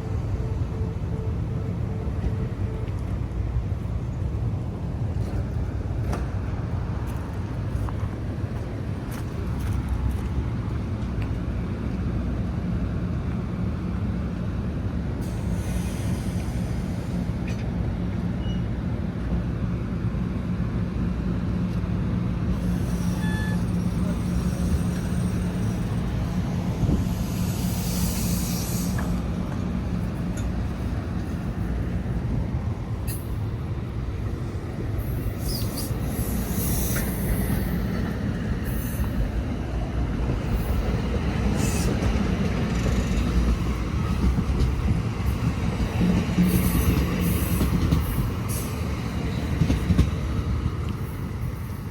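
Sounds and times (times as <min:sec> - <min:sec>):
train rumbling: 0:00.0 - 0:51.9
air hissing: 0:26.8 - 0:29.2.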